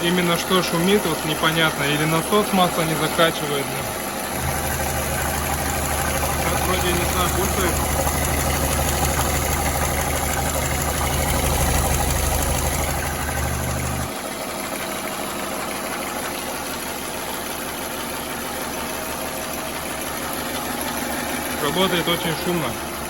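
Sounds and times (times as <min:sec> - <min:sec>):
car engine idling with knocking: 0:00.0 - 0:23.0
deep low hum: 0:04.4 - 0:14.1.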